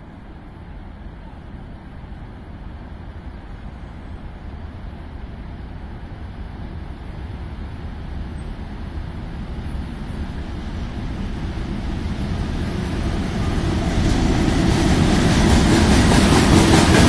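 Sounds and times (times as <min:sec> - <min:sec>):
freight train rumbling: 0:00.0 - 0:17.0
wind buffeting microphone: 0:04.8 - 0:17.0.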